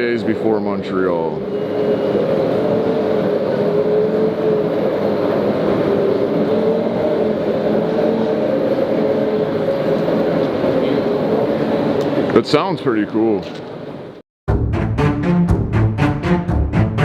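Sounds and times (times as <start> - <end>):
electric car humming: 0.0 - 12.3.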